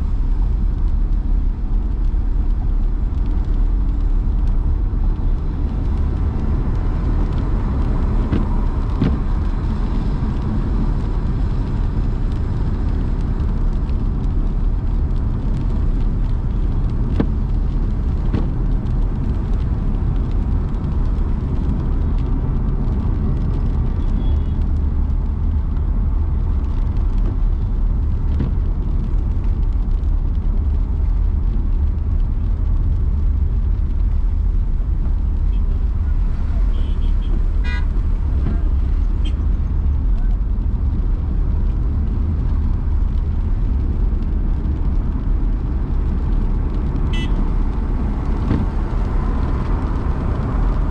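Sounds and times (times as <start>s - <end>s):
car engine and road rumble: 0.0s - 50.9s.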